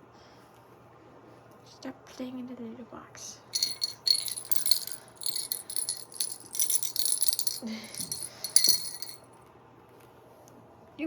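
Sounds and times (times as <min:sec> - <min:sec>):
cat toy bell jingling: 0:03.6 - 0:09.2.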